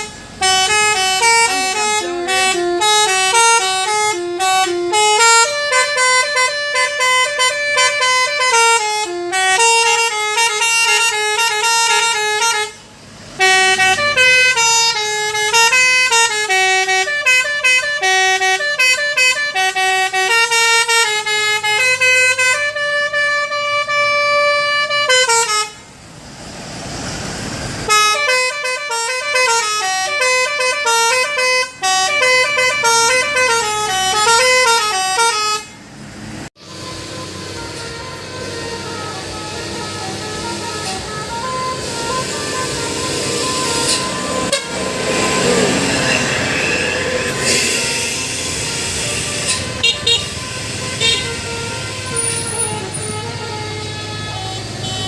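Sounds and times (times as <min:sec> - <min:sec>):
truck air horns playing a melody: 0:00.0 - 0:26.1, 0:27.8 - 0:55.0
rushing noise: 0:35.9 - 0:53.0.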